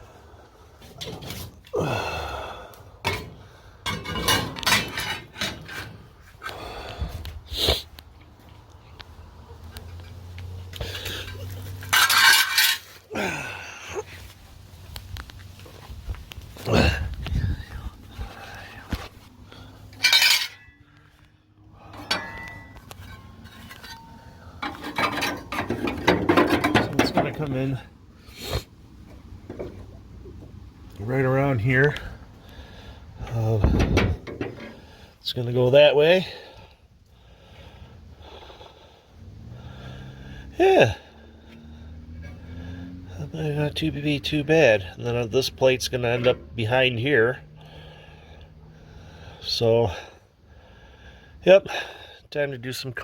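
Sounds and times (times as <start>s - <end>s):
metal parts clanking and rattling: 3.0s - 6.1s, 10.8s - 13.0s, 19.8s - 21.2s, 21.8s - 27.6s, 33.3s - 34.9s
metal clink: 19.9s - 21.0s, 21.9s - 27.2s
sharp ringing metal clank: 22.0s - 24.3s.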